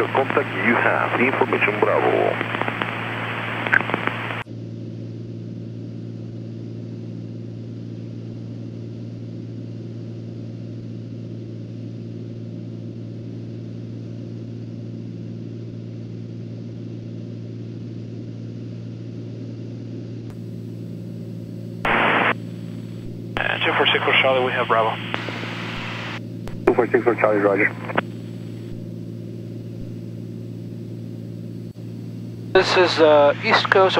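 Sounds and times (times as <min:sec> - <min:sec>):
piston engine and propeller drone: 0:00.0 - 0:09.6.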